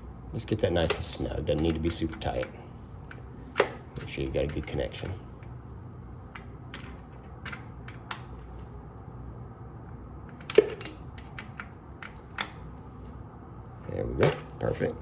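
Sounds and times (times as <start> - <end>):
wrench clicking on metal nut: 0.9 - 2.5.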